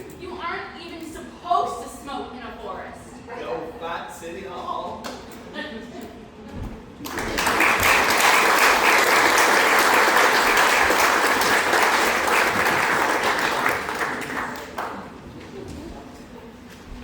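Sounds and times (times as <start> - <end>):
audience applauding: 7.0 - 15.2.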